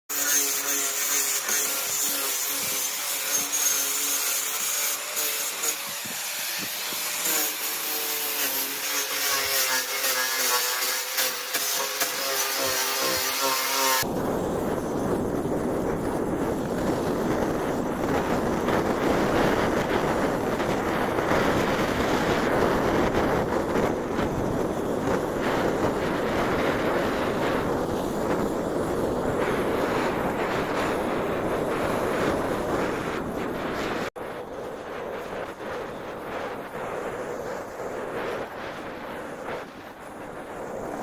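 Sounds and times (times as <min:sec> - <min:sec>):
blowtorch rushing flame: 0:00.1 - 0:41.0.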